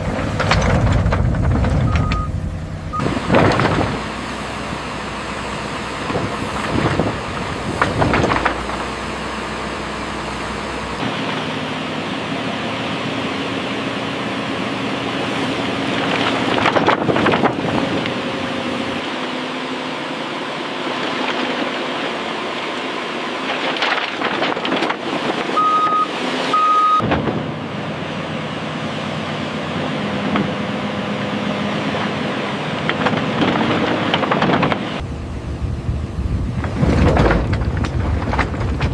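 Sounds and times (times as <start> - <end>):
scraping and clatter of digging: 0.0 - 2.4, 3.0 - 4.8, 6.0 - 9.7, 15.4 - 18.2, 20.8 - 25.8, 32.8 - 35.0, 36.5 - 38.9
hydraulic whine: 0.0 - 23.1
excavator engine running: 0.0 - 38.9
short beeps: 1.9 - 3.1, 25.6 - 27.0.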